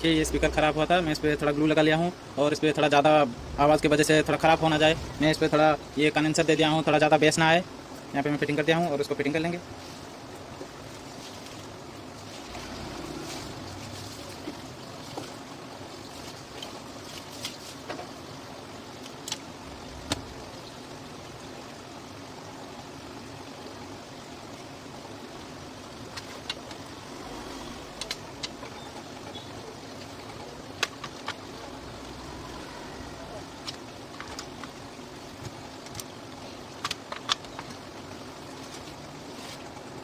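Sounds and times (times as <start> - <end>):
background hum and hiss: 0.0 - 40.0
small parts clicking: 35.4 - 37.9.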